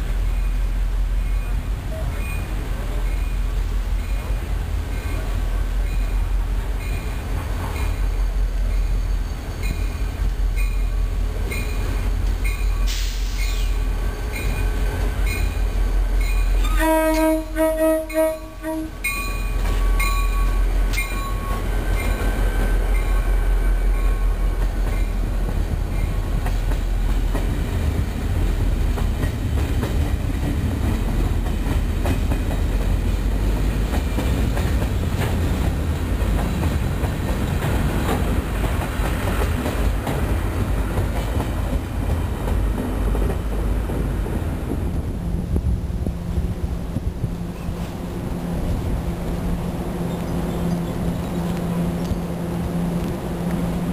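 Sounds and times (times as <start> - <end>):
train rumbling past: 0.0 - 53.9
locomotive horn: 16.6 - 19.1.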